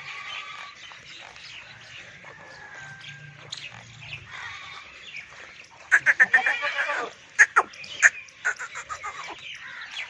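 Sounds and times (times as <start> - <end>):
goat bleating: 5.9 - 7.7.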